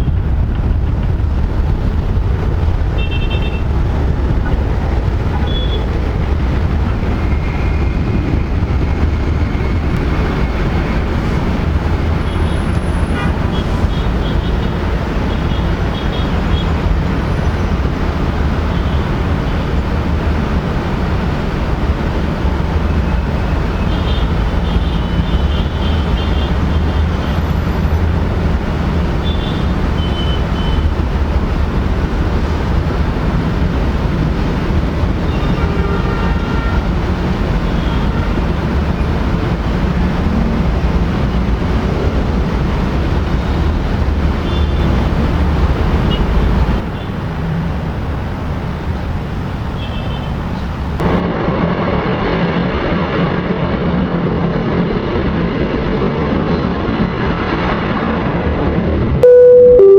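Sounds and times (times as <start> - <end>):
faint high tones: 59.2 - 59.9.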